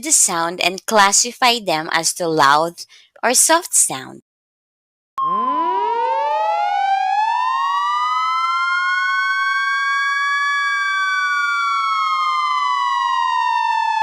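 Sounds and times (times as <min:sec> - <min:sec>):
loud siren with rising pitch: 0:05.2 - 0:14.0.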